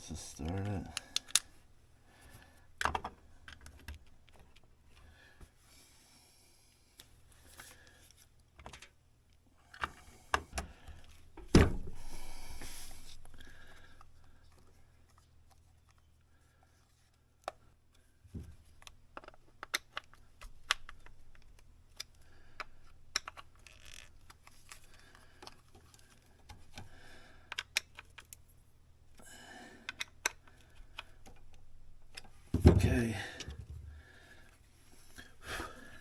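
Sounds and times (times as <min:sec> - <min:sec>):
plastic parts clicking and tapping: 0:00.4 - 0:01.6, 0:02.8 - 0:05.0, 0:17.4 - 0:28.5, 0:29.8 - 0:34.0.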